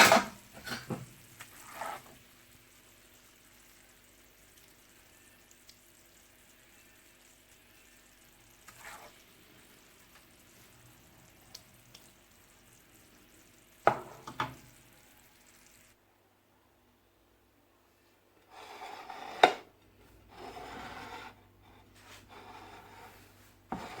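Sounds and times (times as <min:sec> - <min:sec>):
chicken sizzling in a pan: 0:00.0 - 0:16.0.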